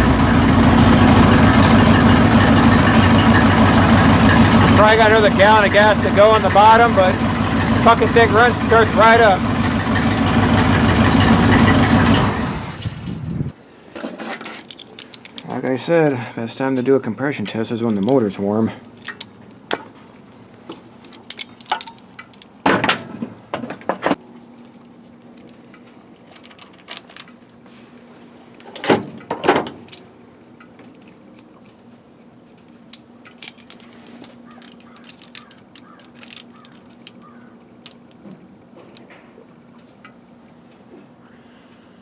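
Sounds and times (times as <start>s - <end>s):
loud clatters: 0.0s - 13.6s
hand tools clinking on metal: 2.4s - 12.3s.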